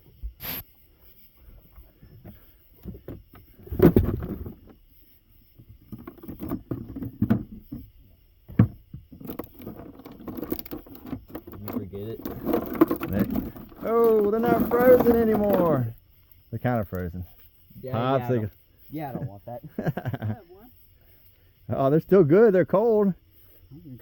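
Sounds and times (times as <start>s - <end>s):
rummaging in a cooler: 2.8s - 4.8s, 5.8s - 7.9s, 8.5s - 15.9s.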